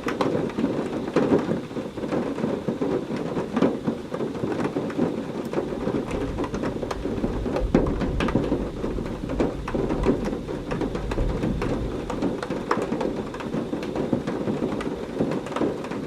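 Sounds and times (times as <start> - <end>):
heavy rain pattering: 0.0 - 16.0
low thunder rumble: 5.6 - 15.3.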